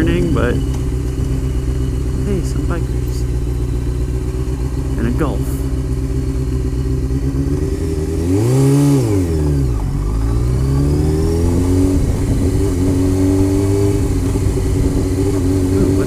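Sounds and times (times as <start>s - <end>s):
motorcycle engine revving: 0.0s - 16.0s
wind noise on microphone: 11.0s - 16.0s.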